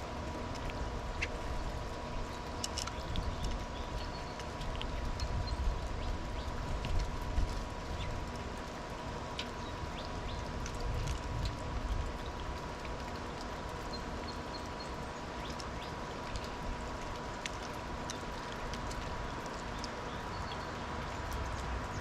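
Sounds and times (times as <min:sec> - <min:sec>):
light ticks: 0:00.2 - 0:22.0
small birds chirping: 0:00.7 - 0:07.2, 0:07.8 - 0:08.4, 0:09.4 - 0:10.8, 0:13.2 - 0:22.0.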